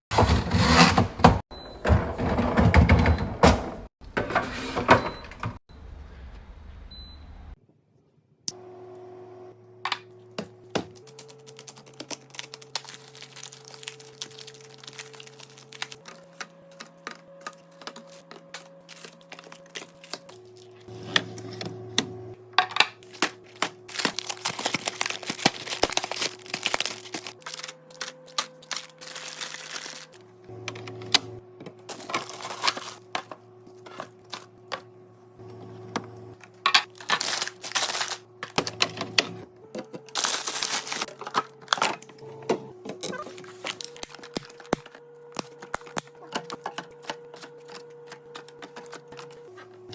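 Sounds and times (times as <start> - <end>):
quiet background music: 10.1 - 49.9
food packaging clicks and crinkles: 10.9 - 20.7, 23.0 - 30.2, 31.9 - 33.4, 36.4 - 39.0, 39.8 - 42.2, 43.0 - 49.5.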